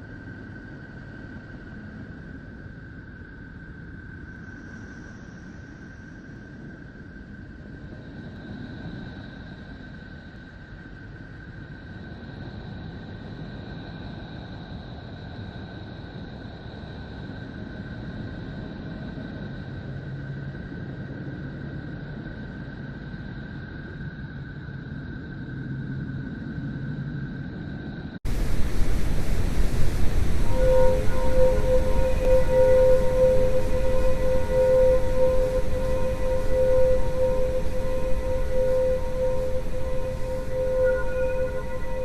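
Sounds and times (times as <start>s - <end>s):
faint high tones: 28.3s - 42.0s
loud full ambient track: 28.3s - 42.0s
low rumbling hiss: 28.3s - 42.0s.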